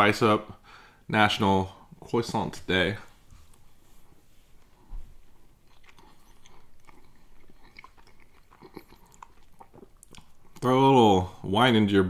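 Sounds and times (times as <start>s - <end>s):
person chewing pastry: 4.6s - 10.7s.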